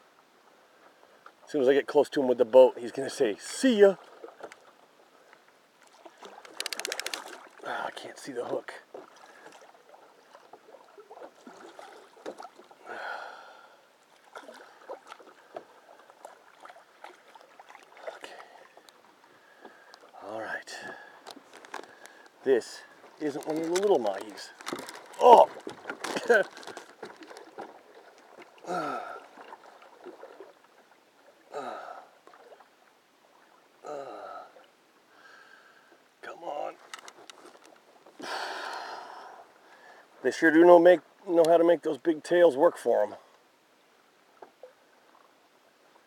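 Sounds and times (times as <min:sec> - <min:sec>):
water lapping against boat hull: 0:00.4 - 0:41.7, 0:44.0 - 0:46.0
heavy breath: 0:12.8 - 0:13.9, 0:28.6 - 0:29.3, 0:38.2 - 0:40.1
man grunting with effort: 0:28.6 - 0:29.2.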